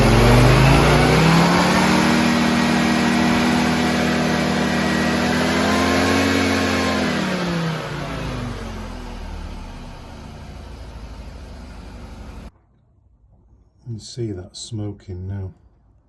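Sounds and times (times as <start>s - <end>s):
rotary engine idling: 0.0s - 12.5s.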